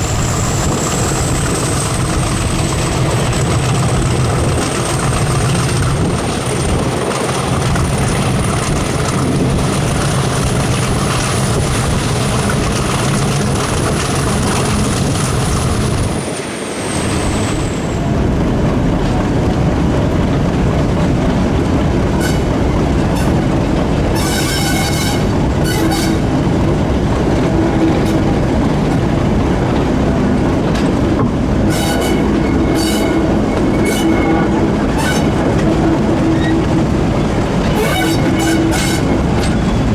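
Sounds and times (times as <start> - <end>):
high-pitched wheel squeal: 0.0 - 3.8, 31.7 - 35.5, 36.2 - 36.7, 37.7 - 39.9
coaches rattling over rails: 0.0 - 39.9
locomotive engine whine: 0.0 - 39.9.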